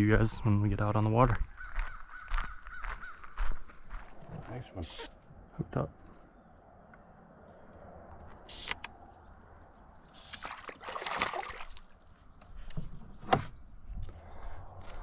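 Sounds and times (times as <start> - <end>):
water splashing and sloshing: 10.0 - 12.4.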